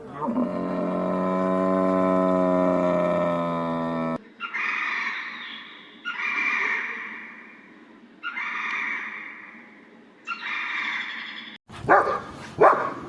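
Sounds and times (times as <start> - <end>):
animal call: 0.0 - 7.6, 8.2 - 9.6.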